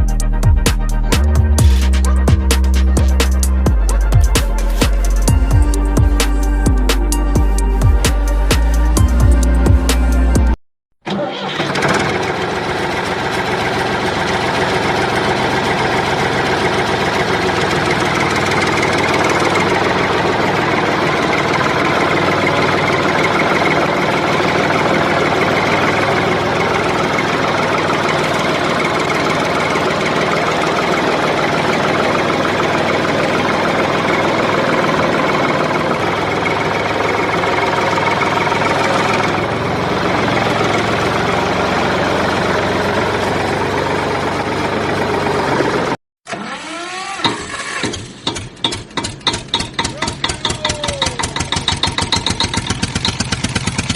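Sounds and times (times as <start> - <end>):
motor running with chugging drone: 11.6 - 46.0, 49.0 - 53.9.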